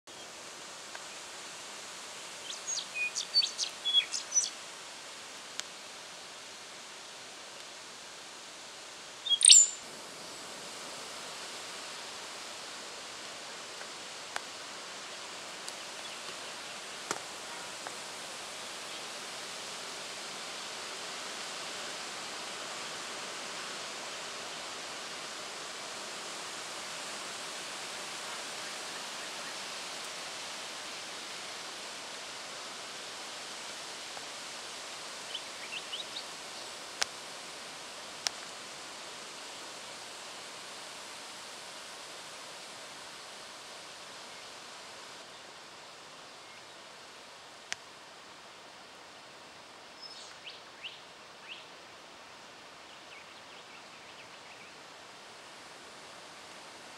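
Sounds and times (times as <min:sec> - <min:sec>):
rushing outdoor background noise: 0:00.1 - 0:56.9
high rising chirps: 0:09.3 - 0:09.8.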